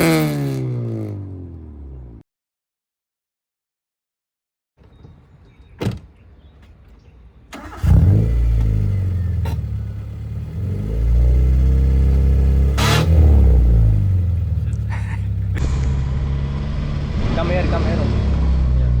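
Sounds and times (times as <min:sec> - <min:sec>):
car engine revving through exhaust: 0:07.8 - 0:19.0.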